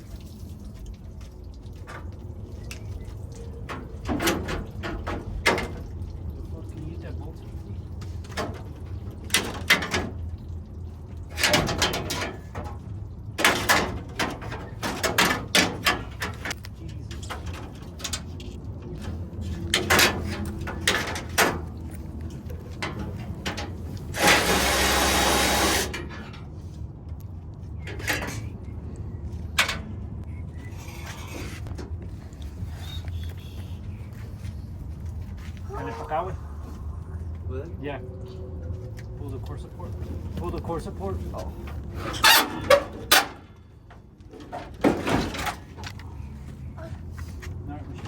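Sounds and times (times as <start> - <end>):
tools and metal parts clanking: 3.7 - 5.9, 8.3 - 10.3, 11.2 - 26.6, 27.8 - 28.6, 29.4 - 30.0, 41.8 - 46.1.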